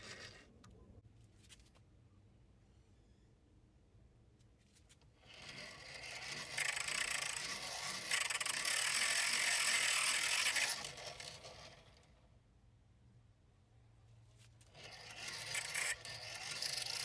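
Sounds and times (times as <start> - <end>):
hand-cranked grinder gears whirring: 0.0 - 0.4, 5.2 - 12.1, 14.6 - 17.0.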